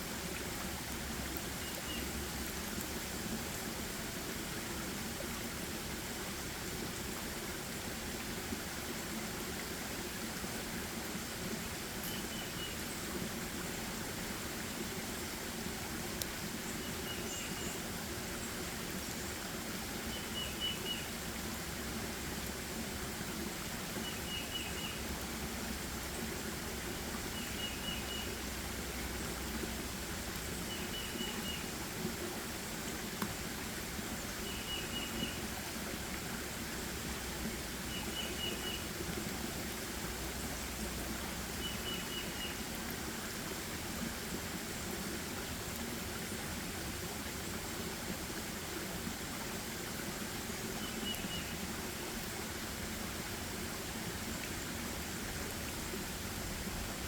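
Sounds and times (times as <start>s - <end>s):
forest ambience: 40.1s - 42.6s.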